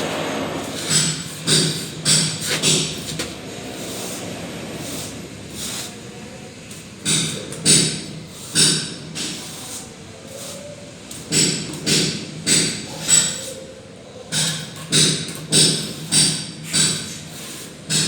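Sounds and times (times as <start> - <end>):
trowel scraping mortar on wall: 0.6 - 4.2.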